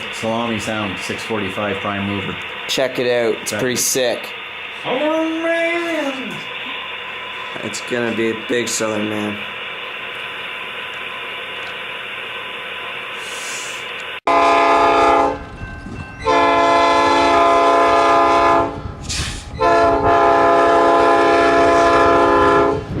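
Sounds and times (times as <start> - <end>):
model train diesel engine sound: 0.0 - 23.0
air horn blasts: 14.3 - 15.4, 16.2 - 18.8, 19.6 - 22.9.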